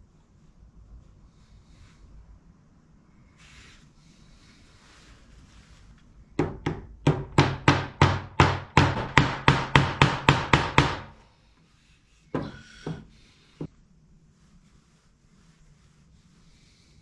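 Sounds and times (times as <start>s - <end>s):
hammer striking: 6.4s - 11.2s, 12.4s - 13.1s.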